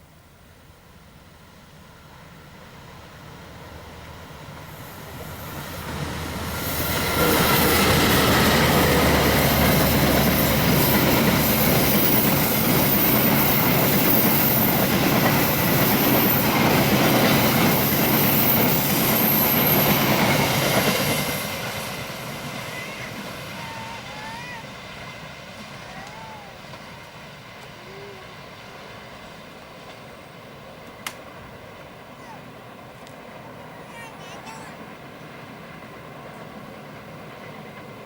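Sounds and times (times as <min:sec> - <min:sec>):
locomotive engine hum: 0:00.1 - 0:38.0
wheels rushing on rails: 0:00.3 - 0:38.0
high wheel squeal: 0:06.7 - 0:14.8.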